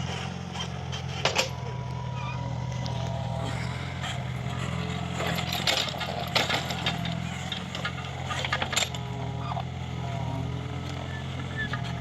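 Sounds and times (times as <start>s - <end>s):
diesel engine running: 0.0s - 12.0s
sharp knocks and rattles: 5.2s - 9.0s.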